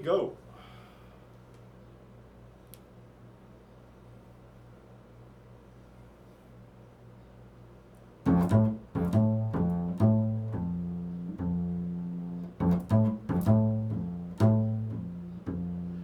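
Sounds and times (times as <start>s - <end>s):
low plucked string notes: 8.3s - 16.0s.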